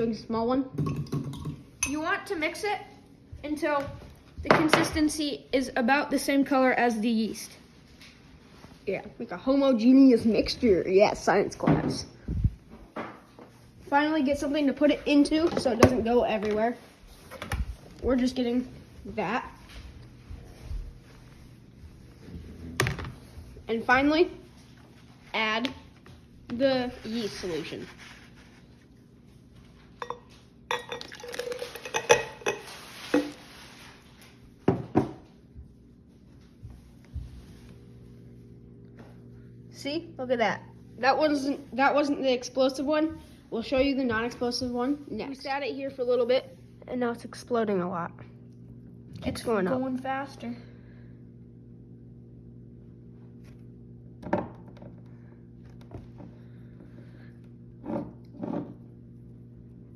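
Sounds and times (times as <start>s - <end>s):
cup clinking against container: 30.0s - 33.3s.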